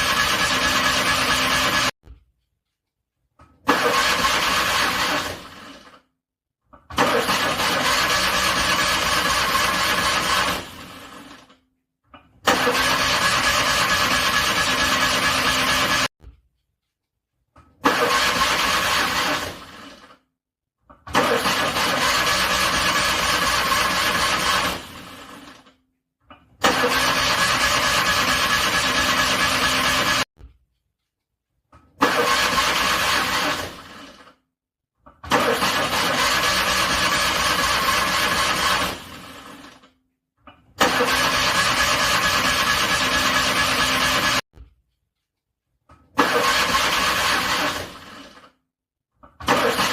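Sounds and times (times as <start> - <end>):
starter cranking car engine: 0.0 - 1.9, 3.6 - 6.1, 6.9 - 11.6, 12.4 - 16.1, 17.8 - 20.2, 21.0 - 25.8, 26.6 - 30.3, 31.9 - 34.4, 35.2 - 39.9, 40.8 - 44.4, 46.2 - 48.6, 49.3 - 49.9.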